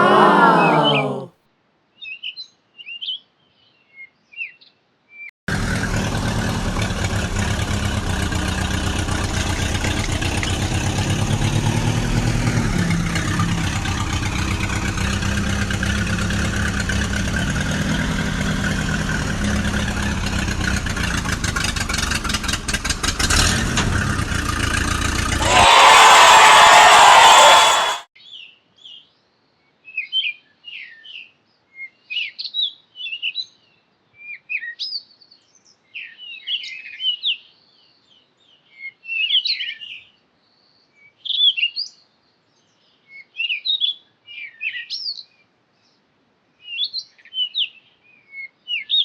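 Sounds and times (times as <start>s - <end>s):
vehicle engine idling: 5.5s - 25.5s.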